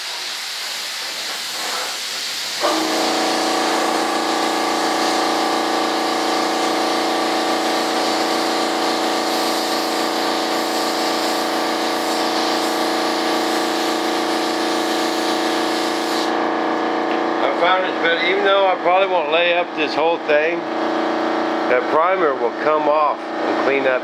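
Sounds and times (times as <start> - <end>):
spray gun hissing: 0.0 - 16.4
steady mechanical hum: 1.0 - 24.0.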